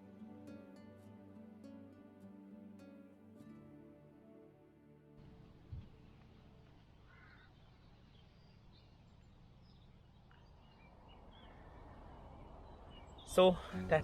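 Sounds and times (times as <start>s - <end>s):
distant bird calls: 5.2s - 14.0s.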